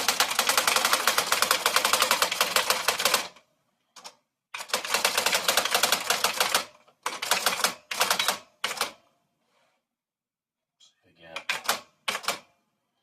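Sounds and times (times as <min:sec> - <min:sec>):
typewriter typing: 0:00.0 - 0:03.4, 0:04.0 - 0:09.0, 0:11.4 - 0:12.4.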